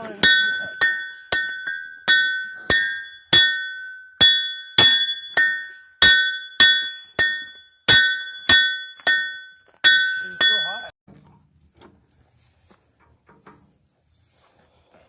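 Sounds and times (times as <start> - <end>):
hammer striking steel on anvil: 0.0 - 10.9.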